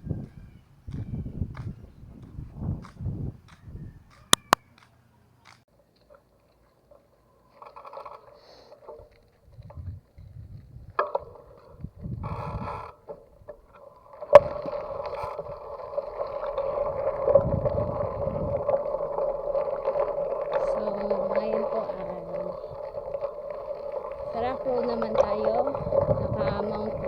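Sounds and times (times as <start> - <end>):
bike hub freewheeling: 11.2 - 27.0.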